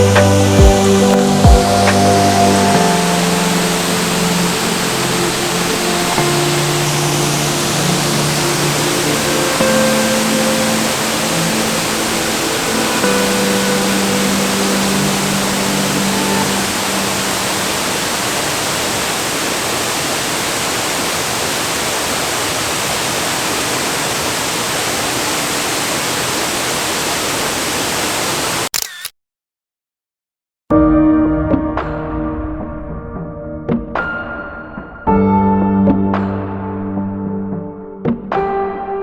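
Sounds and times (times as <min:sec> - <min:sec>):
waterfall rushing: 0:00.0 - 0:28.7.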